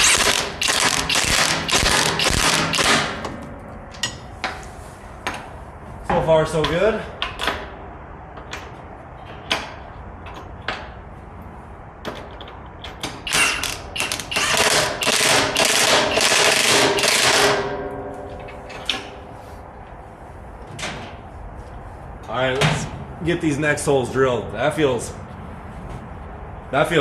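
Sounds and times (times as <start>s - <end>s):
handheld power tool running: 0.0s - 3.0s.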